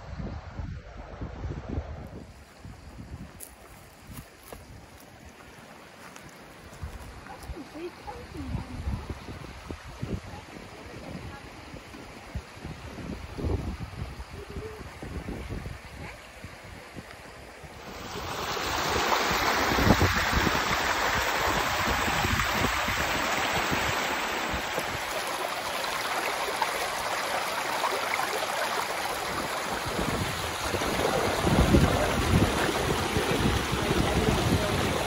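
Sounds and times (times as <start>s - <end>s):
wind buffeting microphone: 6.7s - 25.9s, 29.0s - 35.0s
waterfall rushing: 17.8s - 35.0s.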